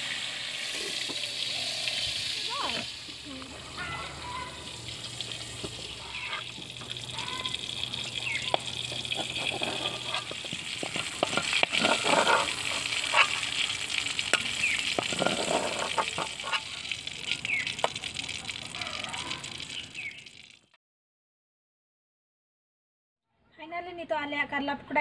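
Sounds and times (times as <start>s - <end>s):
food sizzling in oil: 0.0s - 20.6s
metal utensil scraping a wok: 3.8s - 16.7s
bird chirps: 7.1s - 8.8s, 17.4s - 17.8s.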